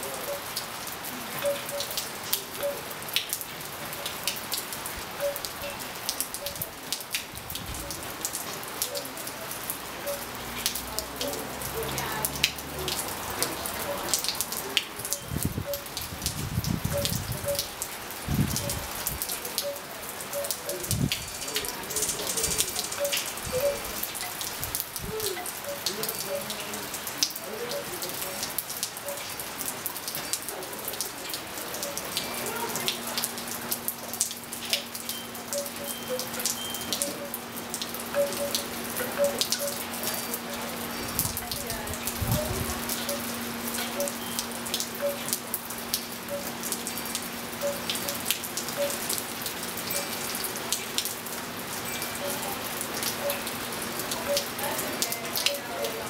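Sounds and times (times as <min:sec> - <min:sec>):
rain drops and drips: 0:00.0 - 0:56.0
wind chimes ringing: 0:20.4 - 0:24.5, 0:49.9 - 0:50.4, 0:51.8 - 0:52.6.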